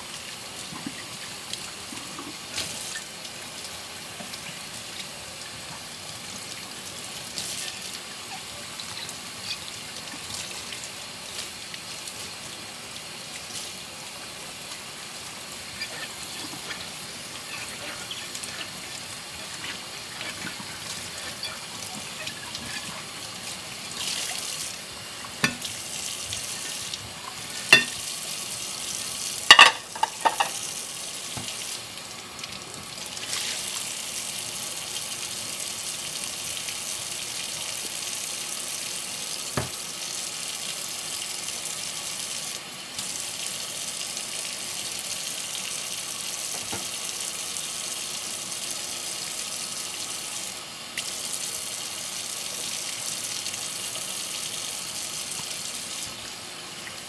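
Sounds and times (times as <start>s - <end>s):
tap water running: 0.0s - 57.0s
dishes clinking: 25.4s - 25.7s, 27.7s - 28.0s, 29.5s - 30.6s.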